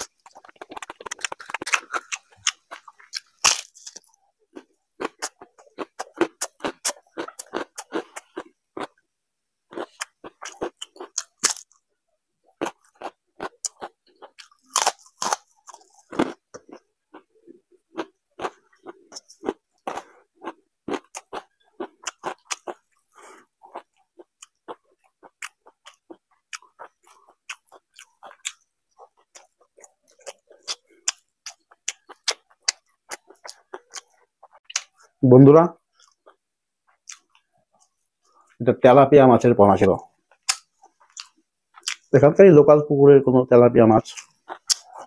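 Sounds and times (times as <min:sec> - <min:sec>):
wet mouth clicks: 0:00.0 - 0:03.3
man crunching chips: 0:00.0 - 0:08.9, 0:09.7 - 0:11.8, 0:12.6 - 0:17.3, 0:17.9 - 0:34.2, 0:44.1 - 0:45.0.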